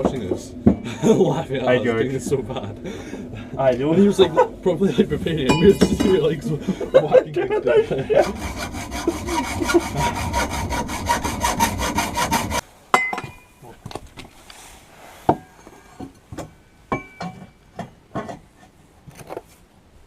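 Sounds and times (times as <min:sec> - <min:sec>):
light metallic knocks and clinks: 0:05.5 - 0:06.3, 0:13.0 - 0:13.6, 0:16.4 - 0:18.4
fast rhythmic rasping scrape: 0:07.9 - 0:12.6.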